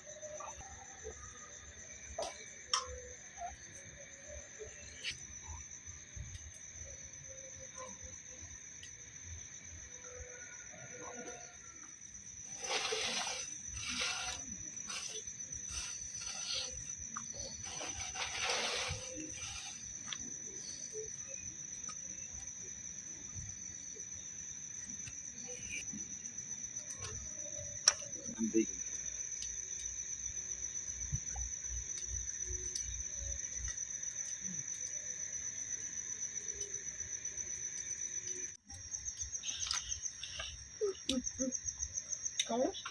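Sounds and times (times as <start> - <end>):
crickets trilling: 0.0 - 42.9
short hissing rustles: 12.4 - 20.7.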